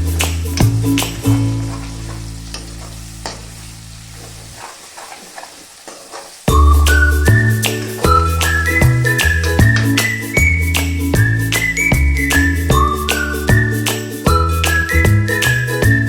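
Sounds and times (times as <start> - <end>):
background music: 0.0 - 2.0, 6.5 - 16.0
food sizzling in a pan: 0.0 - 16.0.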